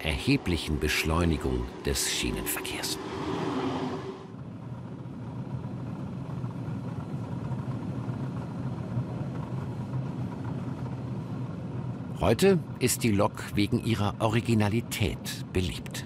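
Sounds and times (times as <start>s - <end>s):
train rushing past: 0.0s - 4.4s
train running rumble: 0.0s - 16.0s.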